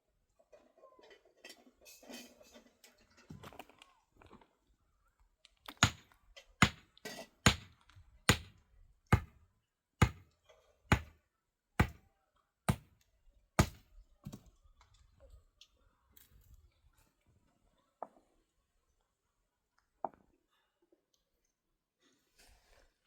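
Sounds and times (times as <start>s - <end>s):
hand tool striking hard surface: 5.8s - 7.7s, 8.3s - 9.4s, 10.0s - 10.2s, 10.9s - 11.2s, 11.8s - 12.0s, 12.7s - 12.9s, 13.6s - 13.8s.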